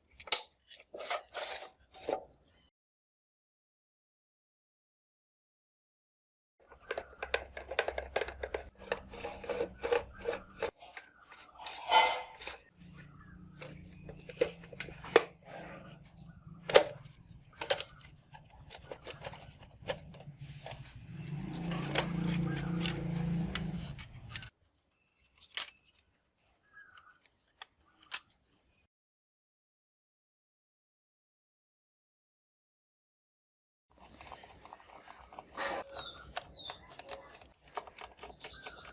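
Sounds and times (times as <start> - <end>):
plastic parts clicking and scraping: 6.6 - 24.5, 25.2 - 28.8, 33.9 - 38.9.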